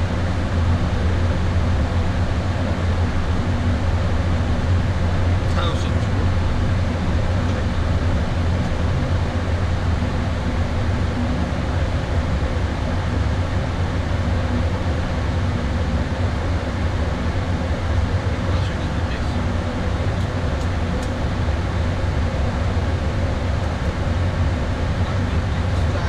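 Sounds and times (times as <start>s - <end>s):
airflow and air conditioning rumble: 0.0s - 26.0s
faint steady hum: 0.0s - 26.0s.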